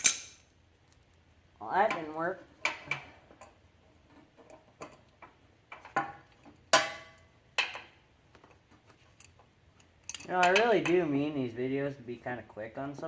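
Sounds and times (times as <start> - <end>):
metal wrenches clinking: 0.0 - 0.4, 9.0 - 11.0.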